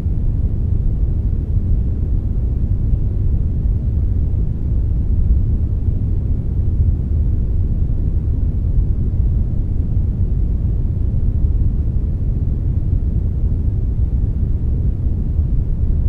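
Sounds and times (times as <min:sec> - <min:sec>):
deep rumbling brown noise: 0:00.0 - 0:16.0.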